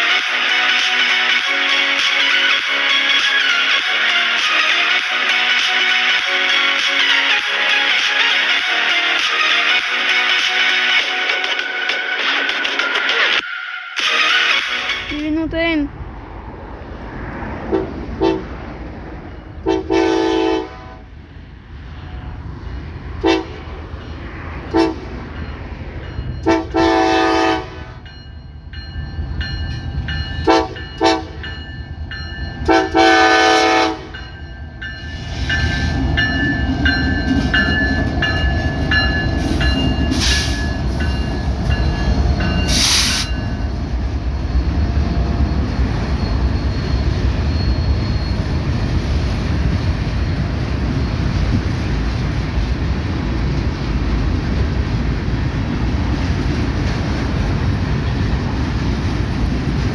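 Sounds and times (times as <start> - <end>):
train engine and wheels rumbling: 14.2 - 59.9
locomotive air horn blasts: 17.7 - 18.5, 19.6 - 21.1, 23.2 - 23.7, 24.7 - 25.3, 26.4 - 28.0, 30.4 - 31.4, 32.7 - 34.2, 39.4 - 41.0, 42.6 - 43.4.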